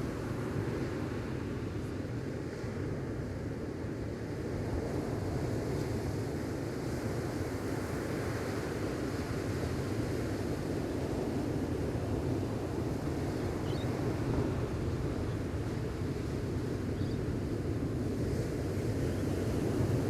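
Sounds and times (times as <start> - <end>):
gentle waves on sandy beach: 0.0 - 20.0
faint high chirp: 13.6 - 13.9.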